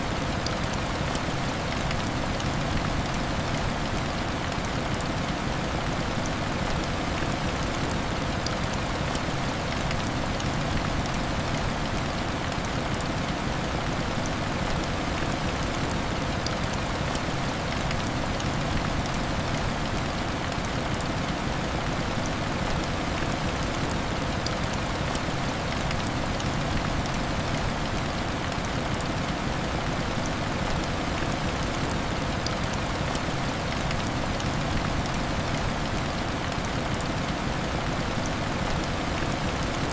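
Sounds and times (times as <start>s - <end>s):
heavy rain on a window: 0.0s - 39.9s.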